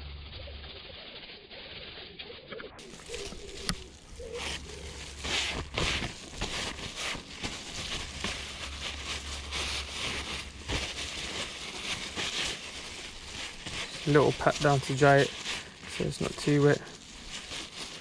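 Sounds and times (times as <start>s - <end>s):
low hum: 0.0s - 14.1s
hands rustling foam filter: 2.8s - 18.0s.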